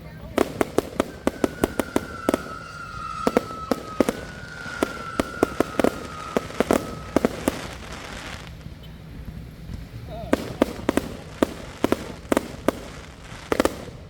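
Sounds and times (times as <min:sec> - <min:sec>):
firework bangs: 0:00.0 - 0:14.0
firework whistle falling: 0:00.3 - 0:08.7.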